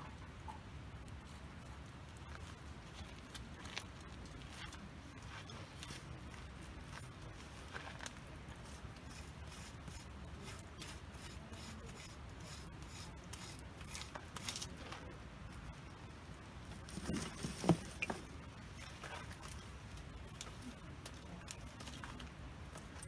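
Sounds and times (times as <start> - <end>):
campfire crackling: 0.8 - 23.0.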